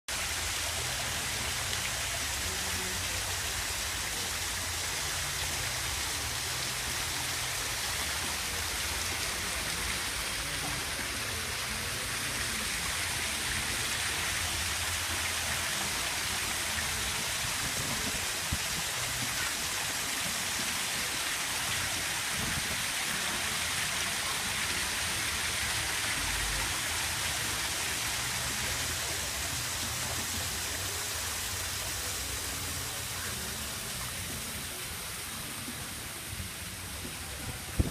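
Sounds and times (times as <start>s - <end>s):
water splashing down waterfall: 0.1s - 37.9s.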